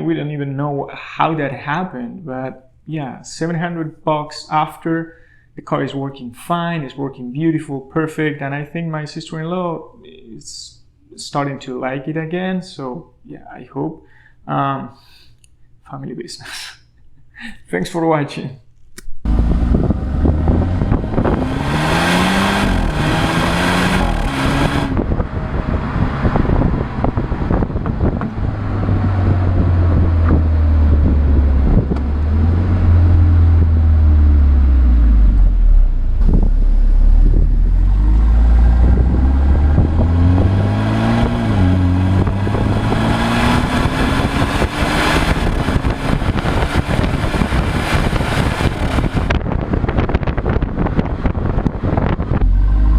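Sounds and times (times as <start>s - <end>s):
road and wind noise: 19.2s - 52.9s
car engine accelerating: 19.3s - 52.9s.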